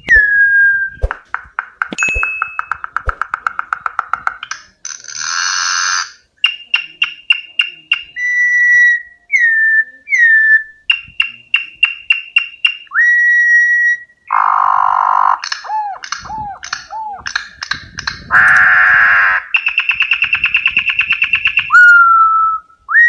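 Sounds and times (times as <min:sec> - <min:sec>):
bird singing clicks and whistles: 0:00.0 - 0:04.7, 0:15.4 - 0:18.7, 0:19.5 - 0:22.0.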